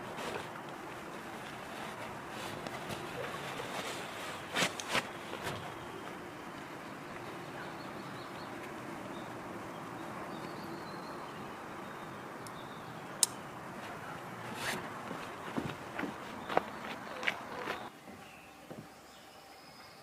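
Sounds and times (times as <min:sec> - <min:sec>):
soft rustle: 0:00.0 - 0:09.4, 0:13.7 - 0:17.9
distant bird calls: 0:00.0 - 0:20.0
outdoor background noise: 0:00.0 - 0:20.0.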